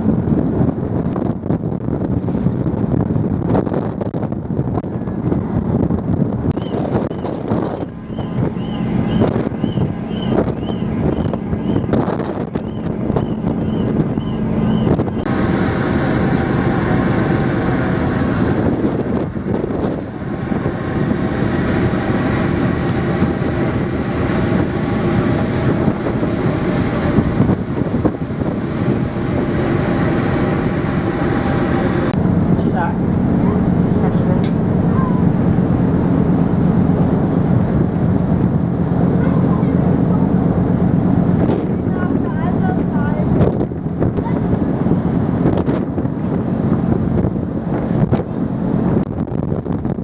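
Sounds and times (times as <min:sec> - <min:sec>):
ship engines rumbling: 0:00.0 - 0:50.0
wind buffeting microphone: 0:00.0 - 0:50.0.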